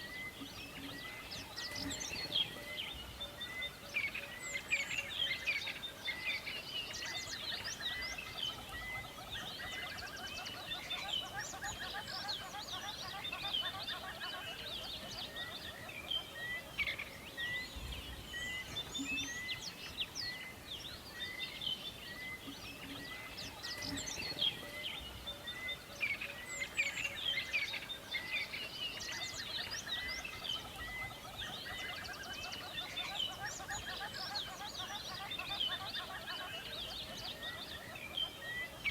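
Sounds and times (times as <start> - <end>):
songbirds chorus: 0.0 - 38.9.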